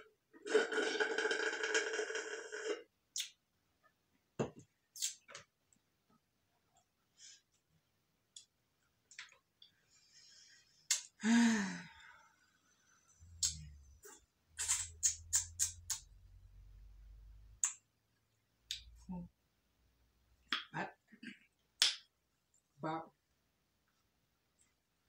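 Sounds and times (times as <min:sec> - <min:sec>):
vocal sigh falling in pitch: 0:11.2 - 0:12.2.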